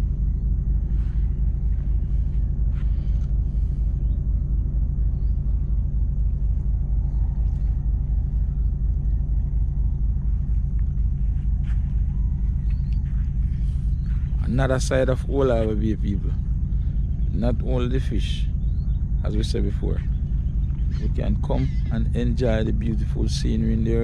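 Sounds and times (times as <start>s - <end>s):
steady low rumble: 0.0s - 24.0s
faint chirps and clicks: 2.8s - 14.4s.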